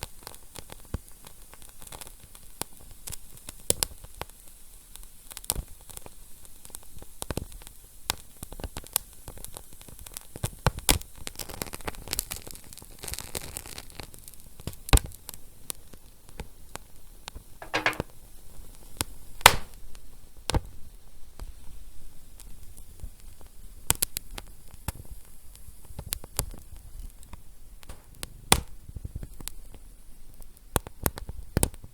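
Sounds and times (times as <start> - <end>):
wood fire crackling: 19.4 - 19.8.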